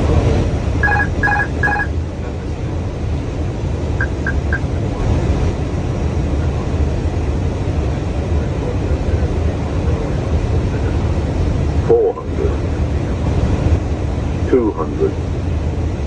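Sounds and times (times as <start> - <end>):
airflow and engine rumble: 0.0 - 16.0
short high beeps: 0.8 - 1.9, 4.0 - 4.7.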